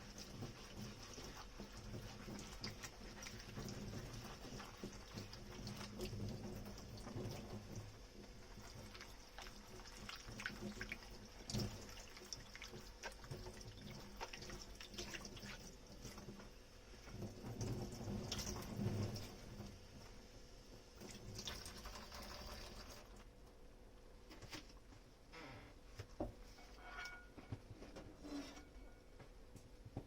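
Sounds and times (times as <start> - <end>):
tap water running: 0.0 - 23.3
dishes clinking: 26.6 - 27.6.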